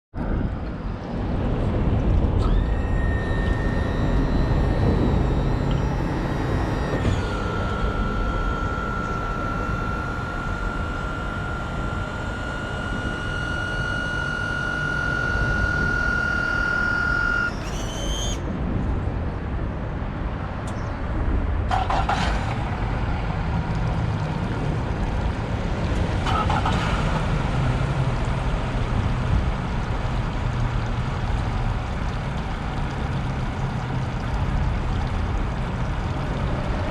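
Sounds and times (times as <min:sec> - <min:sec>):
boat engine running: 0:00.8 - 0:18.4, 0:21.7 - 0:36.9
high electronic tone: 0:02.4 - 0:18.4.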